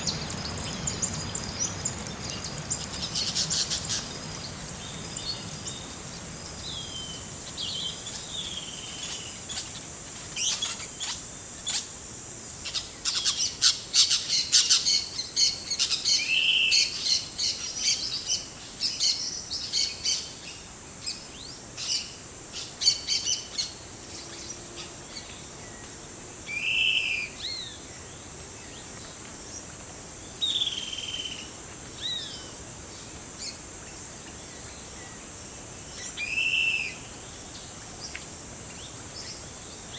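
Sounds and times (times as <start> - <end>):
birds chirping and whistling: 0.0 - 5.8
insect drone: 0.0 - 39.9.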